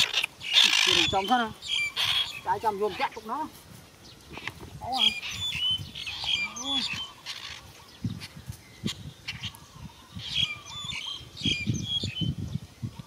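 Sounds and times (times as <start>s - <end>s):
harsh bird squawks: 0.0s - 3.1s, 5.0s - 9.6s.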